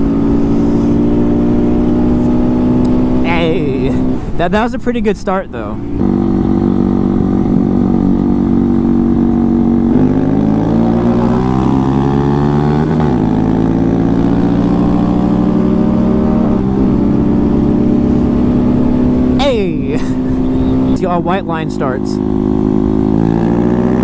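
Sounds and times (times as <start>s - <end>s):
motorcycle engine accelerating hard: 0.0s - 4.4s, 5.7s - 24.0s.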